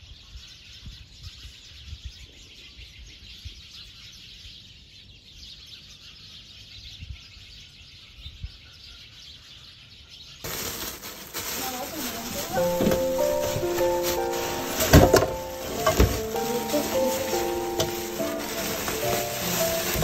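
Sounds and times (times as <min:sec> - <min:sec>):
steady hiss: 0:10.5 - 0:20.0
birds chirping: 0:11.6 - 0:20.0.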